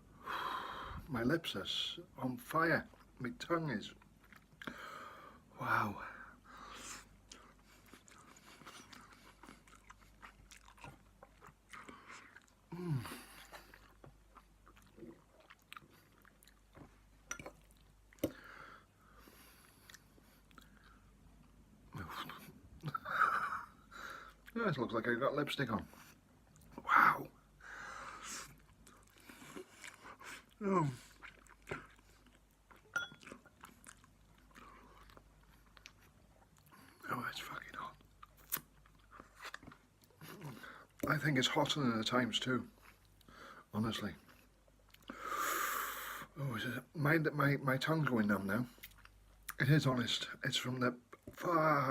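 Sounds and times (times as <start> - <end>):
person chewing noodles: 3.9 - 5.4, 6.6 - 24.6, 27.7 - 37.0, 37.8 - 41.1, 42.7 - 43.6, 44.2 - 46.2, 48.7 - 49.6.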